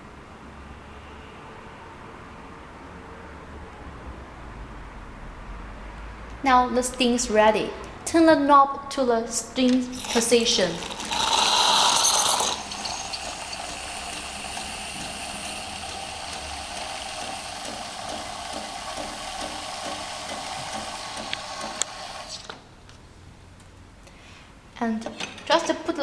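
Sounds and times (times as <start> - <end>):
steam wand hissing: 9.9 - 22.5
coffee machine click: 10.0 - 22.4.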